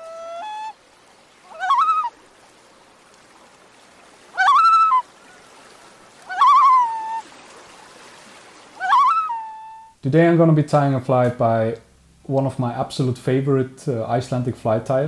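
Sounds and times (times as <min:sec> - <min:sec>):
bird calling: 0:00.0 - 0:00.8, 0:01.4 - 0:02.2, 0:04.3 - 0:07.3, 0:08.6 - 0:10.0.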